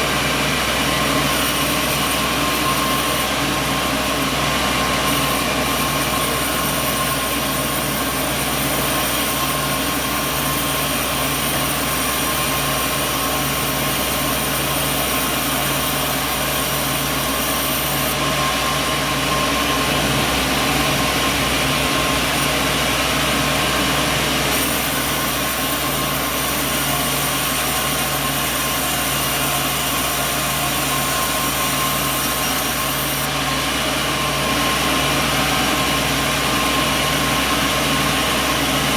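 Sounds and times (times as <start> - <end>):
machinery whining tones: 0.0 - 38.9
sawmill machinery drone: 0.0 - 38.9.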